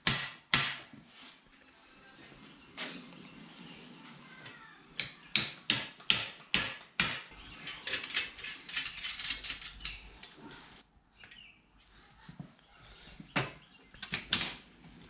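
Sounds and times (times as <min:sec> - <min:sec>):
sharp metal knocks: 0:05.0 - 0:07.3
clicking clatter of hand tools: 0:07.7 - 0:10.1.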